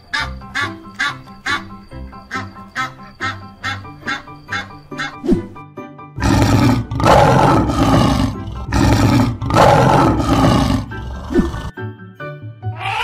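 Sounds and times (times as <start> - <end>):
background music: 0.0 - 13.0
lion roaring: 6.2 - 11.7.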